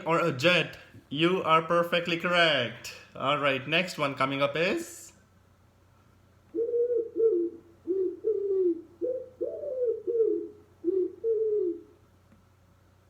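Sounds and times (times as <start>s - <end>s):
pigeon cooing: 6.5s - 12.0s.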